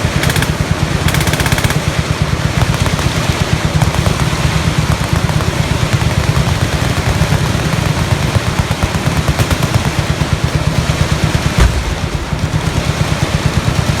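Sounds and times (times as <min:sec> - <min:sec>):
machine gun fire: 0:00.0 - 0:14.0
heavy thump: 0:11.4 - 0:13.0.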